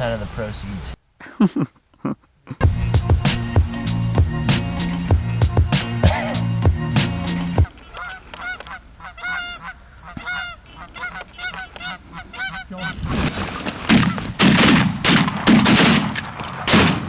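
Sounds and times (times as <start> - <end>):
geese honking: 5.9 - 14.4
shotgun blasts: 13.9 - 17.0.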